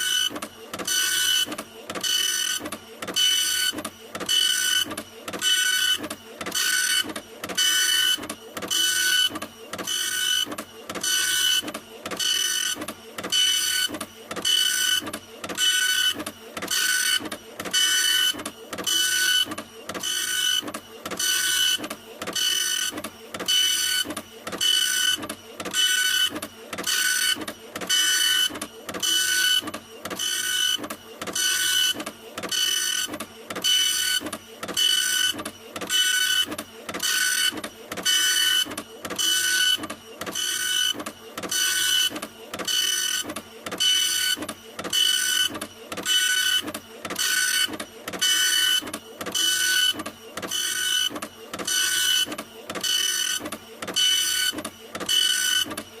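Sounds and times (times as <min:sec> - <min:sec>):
printer printing: 0:00.0 - 0:56.0.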